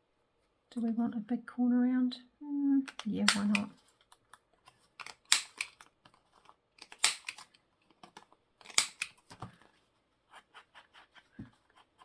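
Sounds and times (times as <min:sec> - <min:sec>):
corner punch clicking: 0:02.9 - 0:03.7, 0:05.0 - 0:05.9, 0:06.8 - 0:07.5, 0:08.6 - 0:09.2.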